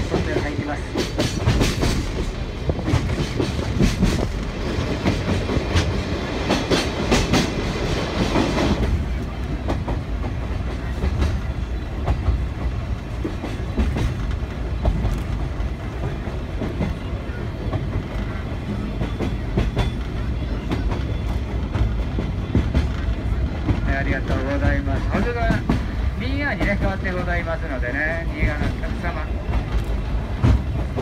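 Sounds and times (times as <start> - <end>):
train wheels rumbling: 0.0 - 31.0.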